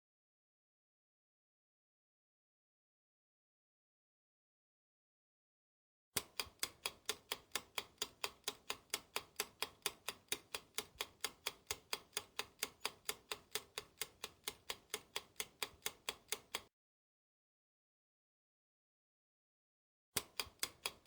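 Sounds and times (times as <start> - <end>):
clock ticking: 6.2 - 16.7, 20.2 - 21.0.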